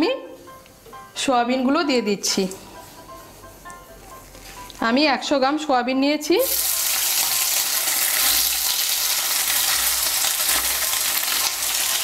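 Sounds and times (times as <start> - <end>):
food sizzling in hot oil: 6.4 - 12.0.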